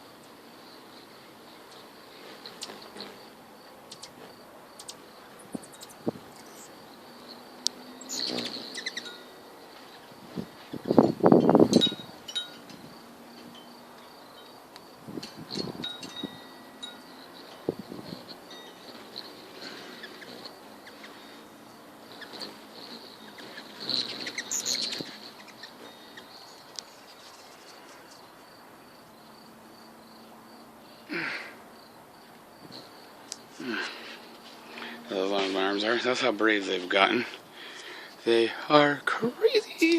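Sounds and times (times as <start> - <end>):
insect chirping: 0.0 - 36.3, 37.0 - 39.9
hummingbird wings buzzing: 0.0 - 38.4
wind chimes ringing: 8.0 - 9.5, 11.1 - 12.9, 13.5 - 14.6, 15.6 - 17.7, 18.4 - 19.4, 25.8 - 26.3.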